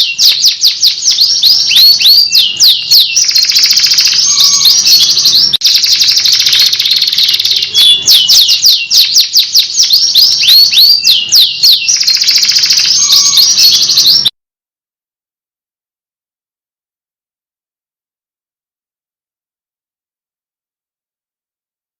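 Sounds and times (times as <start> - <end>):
canary singing trills: 0.0 - 14.3.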